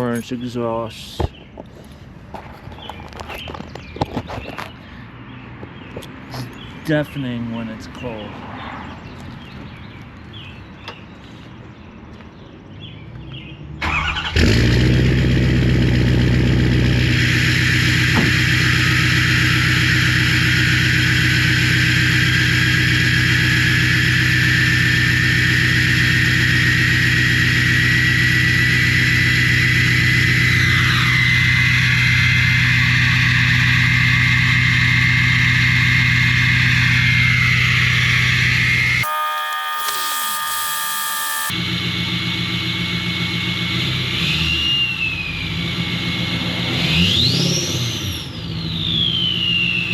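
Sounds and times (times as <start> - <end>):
diesel engine idling loudly: 14.4 - 39.0, 41.6 - 44.5
quieter steady tones: 17.0 - 41.6
turbo whistle: 17.1 - 41.6.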